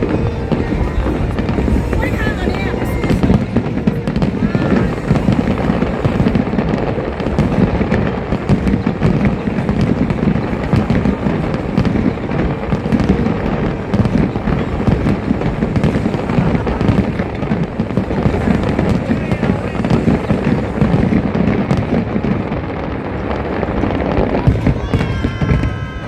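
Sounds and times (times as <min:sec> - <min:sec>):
fireworks booming: 0:00.0 - 0:26.0
fireworks crackling: 0:00.0 - 0:26.0.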